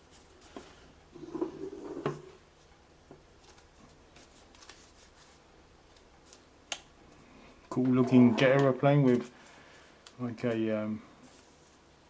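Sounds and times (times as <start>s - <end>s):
paper rustling: 3.4s - 6.4s, 10.4s - 11.9s.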